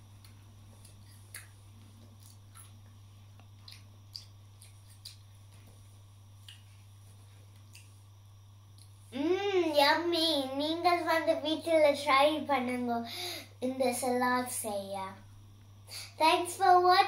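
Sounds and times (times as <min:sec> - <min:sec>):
steady low hum: 0:00.0 - 0:17.0
crunchy chewing: 0:00.2 - 0:05.8.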